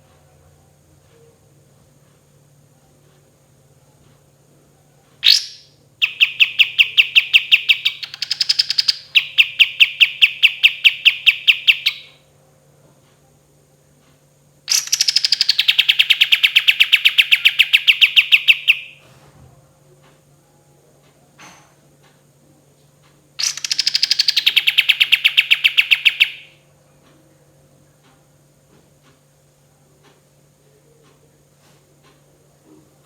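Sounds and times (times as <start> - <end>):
songbird trilling: 5.2 - 12.2, 14.7 - 19.0, 23.4 - 26.5.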